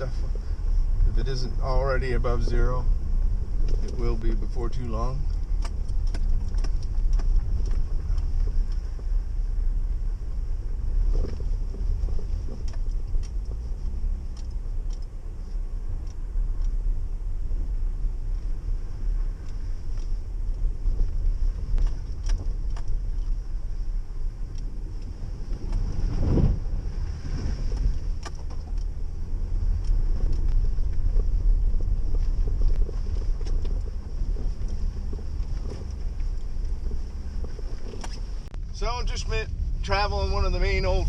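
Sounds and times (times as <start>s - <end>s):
engine and road rumble: 0.0s - 41.0s
vehicle bump: 0.0s - 41.0s.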